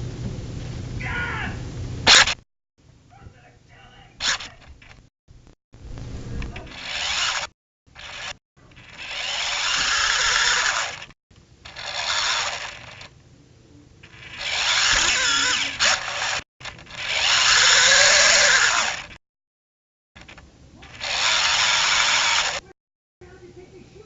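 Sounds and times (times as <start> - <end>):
drone propellers whirring: 5.8 - 13.2, 14.0 - 19.2, 20.2 - 22.6.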